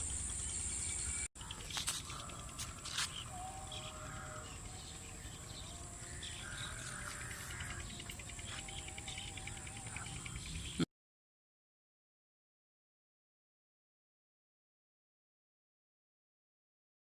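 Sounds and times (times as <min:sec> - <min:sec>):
high-pitched insect drone: 0:00.0 - 0:10.8.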